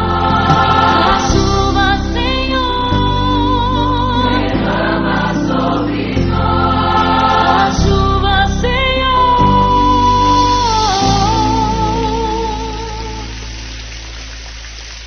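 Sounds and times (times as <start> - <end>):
gospel choir singing: 0.0 - 11.1
sustained bass and chords: 0.0 - 15.0.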